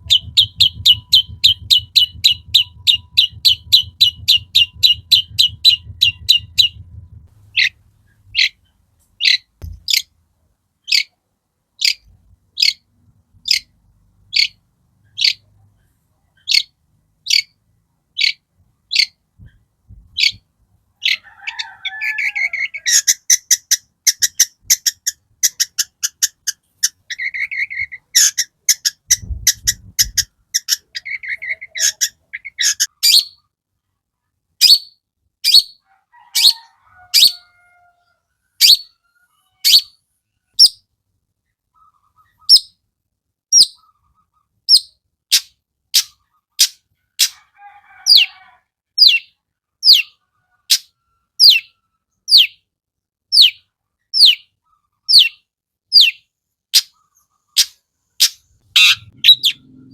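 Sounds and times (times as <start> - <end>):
bird scratchy chatter: 0.0 - 8.6, 22.6 - 32.9, 56.8 - 59.6
bird sharp downward-sliding calls: 0.0 - 8.6, 39.6 - 39.9, 58.2 - 59.9.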